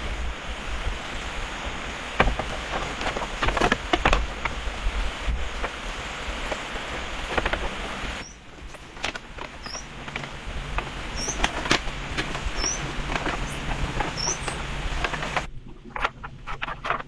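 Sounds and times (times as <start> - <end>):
taps and knocks on wood: 2.2 - 4.6, 6.5 - 15.5.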